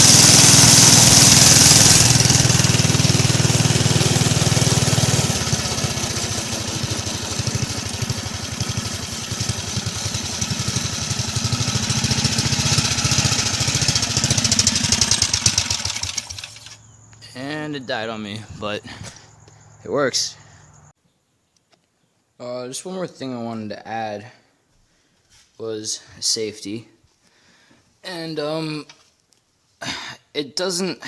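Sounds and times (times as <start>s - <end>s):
small engine running unevenly: 0.0s - 17.0s.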